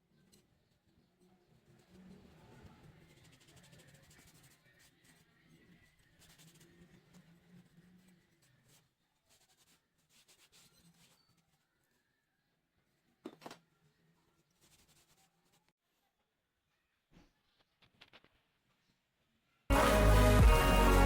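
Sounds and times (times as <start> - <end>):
faint scratching and rubbing: 0.0 - 12.2, 12.8 - 16.2.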